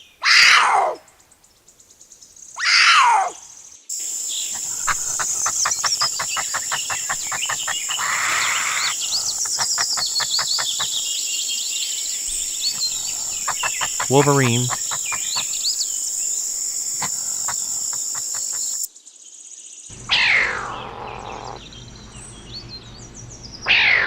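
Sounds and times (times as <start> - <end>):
cougar cry: 0.2 - 1.0, 2.6 - 3.4, 4.5 - 11.1, 12.4 - 15.7, 20.0 - 21.6, 23.6 - 24.0
insects trilling: 0.4 - 24.0
bird chirps: 3.4 - 23.9
quick ticks: 4.6 - 11.1, 12.8 - 15.6, 17.0 - 18.9.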